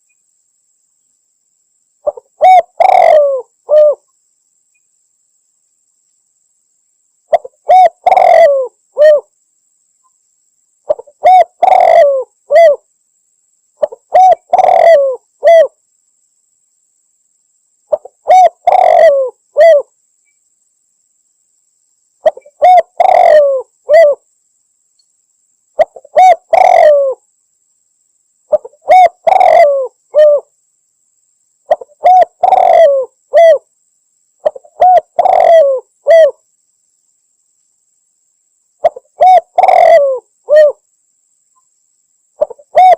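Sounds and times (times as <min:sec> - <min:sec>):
dove cooing: 0:02.0 - 0:04.0, 0:07.3 - 0:09.3, 0:10.9 - 0:12.8, 0:13.8 - 0:15.8, 0:17.9 - 0:19.9, 0:22.2 - 0:24.2, 0:25.8 - 0:27.2, 0:28.5 - 0:30.5, 0:31.7 - 0:33.7, 0:34.4 - 0:36.4, 0:38.8 - 0:40.8, 0:42.4 - 0:42.9.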